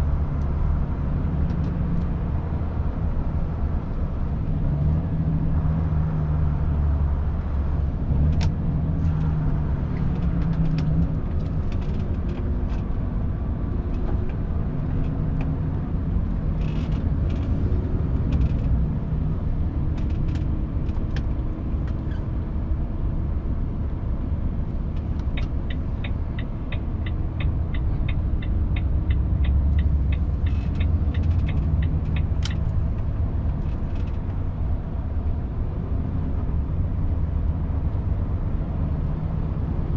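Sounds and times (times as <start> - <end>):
turn signal ticking: 24.9 - 34.2.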